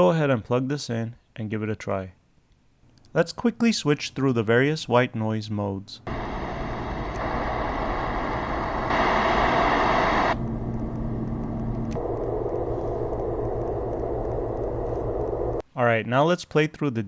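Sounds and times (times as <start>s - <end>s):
white noise machine hiss: 6.0s - 15.6s.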